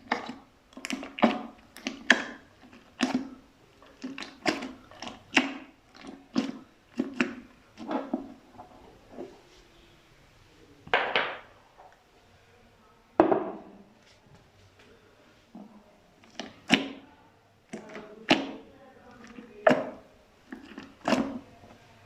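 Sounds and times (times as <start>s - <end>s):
slime squelching: 0.0s - 9.7s, 15.5s - 22.0s.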